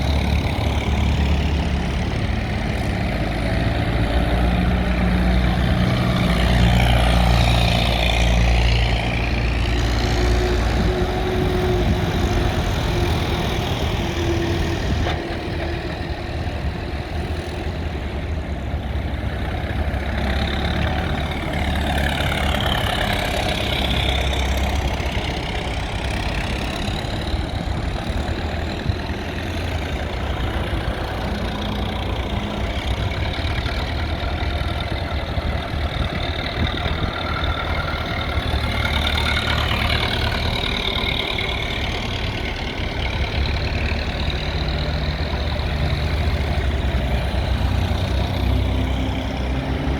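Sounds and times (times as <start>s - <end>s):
tractor engines rumbling: 0.0s - 49.9s.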